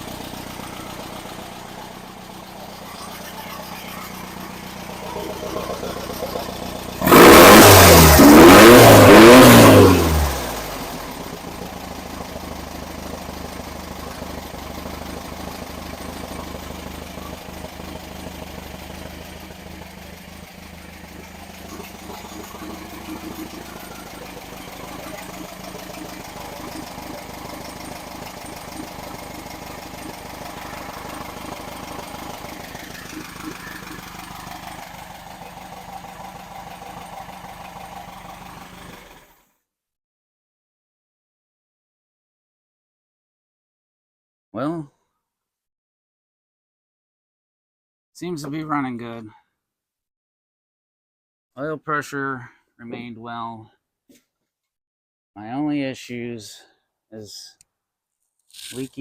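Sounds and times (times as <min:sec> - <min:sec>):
engine revving: 0:00.0 - 0:39.3
engine idling: 0:00.0 - 0:39.4.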